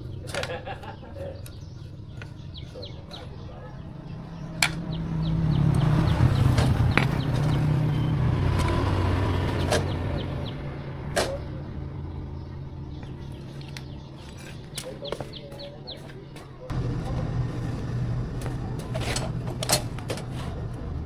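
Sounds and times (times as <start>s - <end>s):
vehicle engine passing by: 3.9s - 14.2s, 16.7s - 21.0s.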